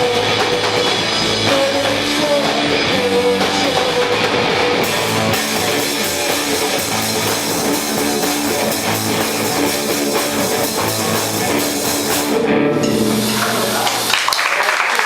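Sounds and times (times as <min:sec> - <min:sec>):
rock band playing loudly: 0:00.0 - 0:14.4.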